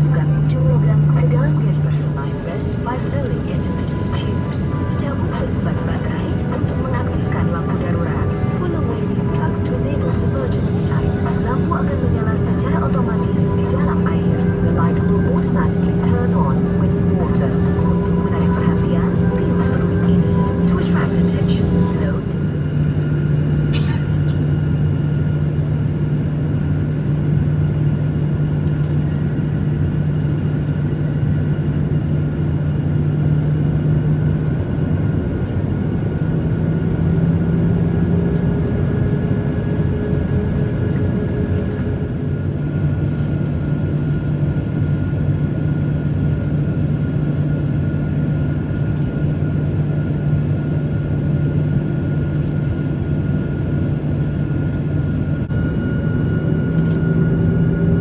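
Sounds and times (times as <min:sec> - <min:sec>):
faint high whines: 0:00.0 - 0:23.7
low hum: 0:00.0 - 0:32.0, 0:34.8 - 0:50.4
jet engine cabin drone: 0:00.0 - 0:58.0.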